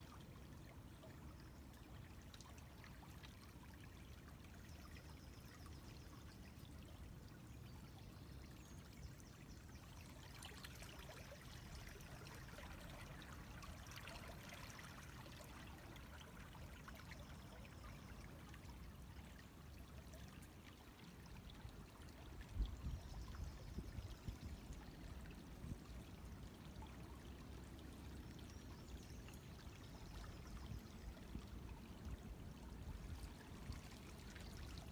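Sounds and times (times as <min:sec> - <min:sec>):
river water running: 0:00.0 - 0:34.9.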